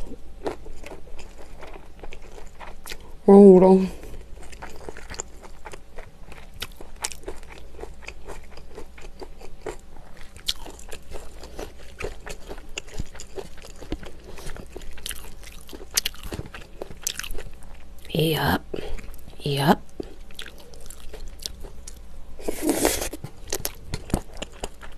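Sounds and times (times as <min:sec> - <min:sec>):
wet chewing clicks and crunches: 0:04.4 - 0:17.8, 0:19.9 - 0:22.0, 0:23.1 - 0:24.9.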